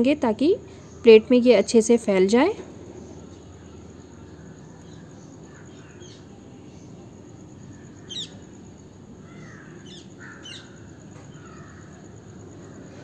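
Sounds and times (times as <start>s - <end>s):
low background noise: 0.0s - 13.0s
faint bird calls: 2.8s - 13.0s.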